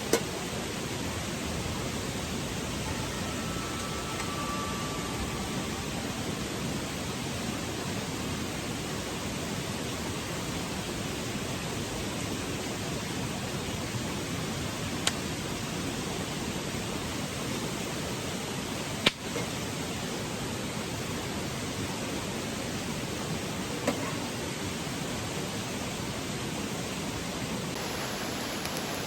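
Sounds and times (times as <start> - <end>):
steady rushing noise: 19.8 - 29.0.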